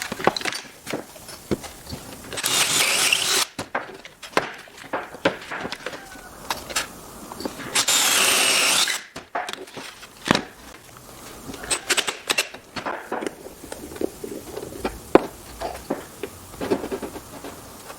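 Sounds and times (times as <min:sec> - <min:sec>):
power drill boring into wood: 0:02.3 - 0:03.6, 0:07.4 - 0:09.2, 0:11.6 - 0:12.6
tools clicking and knocking: 0:11.5 - 0:13.9.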